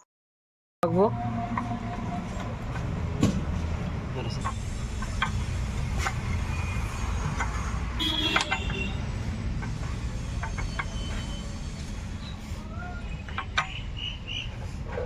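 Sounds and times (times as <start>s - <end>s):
metal tools clinking on engine parts: 9.6s - 12.5s, 13.1s - 15.0s.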